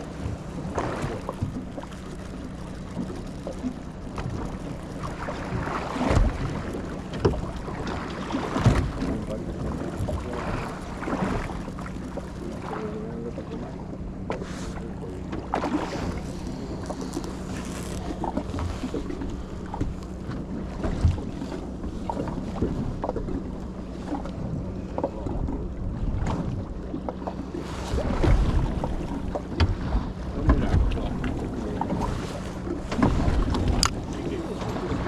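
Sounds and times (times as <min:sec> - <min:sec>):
boat engine hum: 0:00.0 - 0:35.0
water against hull: 0:00.0 - 0:35.0
wind on microphone: 0:14.4 - 0:23.6, 0:27.5 - 0:35.0.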